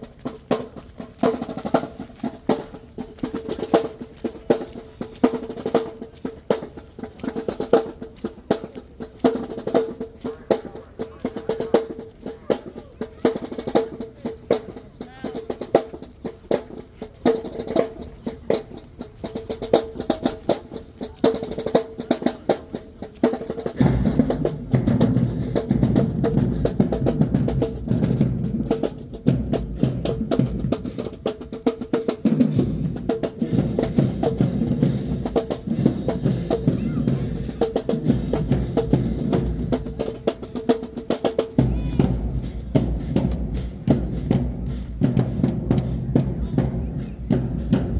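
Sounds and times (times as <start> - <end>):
snare drum strokes and rolls: 0.0 - 47.9
bass drums pounding: 32.3 - 47.9.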